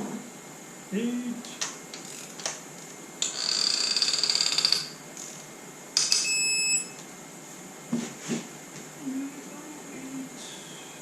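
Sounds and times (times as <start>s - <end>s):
steady beep: 6.0s - 7.0s.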